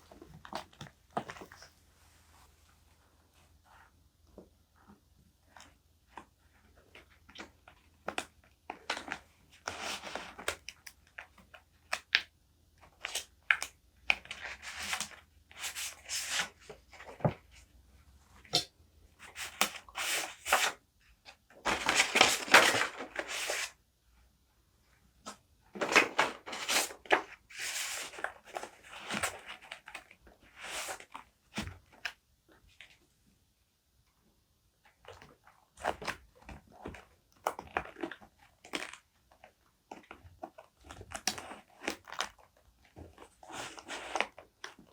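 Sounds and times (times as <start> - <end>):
paper rustling and crinkling: 14.2 - 17.6, 19.2 - 20.8, 21.6 - 23.8, 25.3 - 32.1, 40.0 - 44.9.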